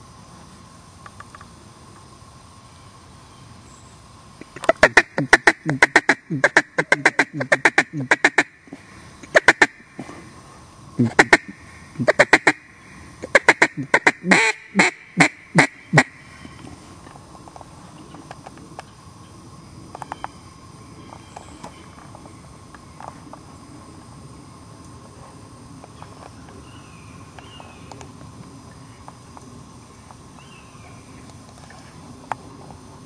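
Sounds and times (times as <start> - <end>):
duck quacking: 4.6 - 8.6, 9.2 - 9.8, 11.0 - 16.2.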